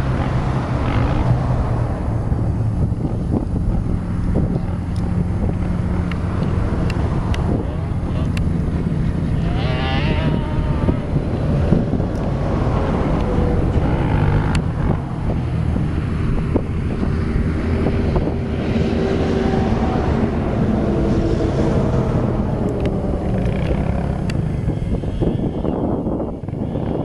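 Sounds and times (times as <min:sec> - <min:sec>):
engine rumble: 0:00.0 - 0:27.0
higher engine note wavering: 0:00.0 - 0:27.0
wind buffeting microphone: 0:00.0 - 0:27.0.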